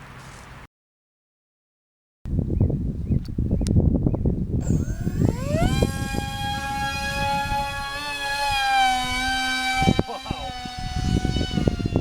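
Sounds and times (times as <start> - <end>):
low hum: 4.6 - 11.9.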